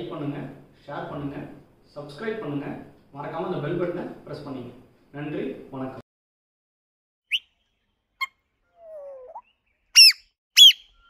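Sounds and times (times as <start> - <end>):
downward-sweeping bird chirps: 7.3 - 11.0
high bird chirps: 7.3 - 11.0.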